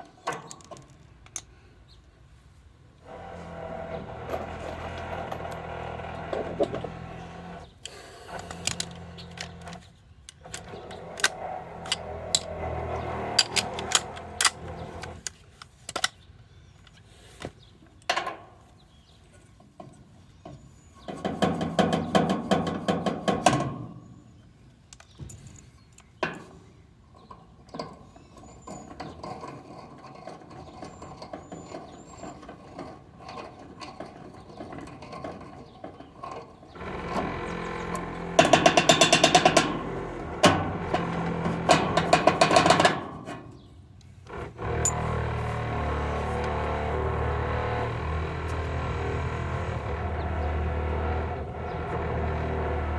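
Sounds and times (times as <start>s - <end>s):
tools clicking and knocking: 0.2s - 1.5s, 7.8s - 16.2s, 24.9s - 26.5s, 36.9s - 43.4s
hydraulic press tool running: 3.0s - 9.9s, 10.5s - 15.3s, 36.8s - 43.0s, 44.3s - 52.9s.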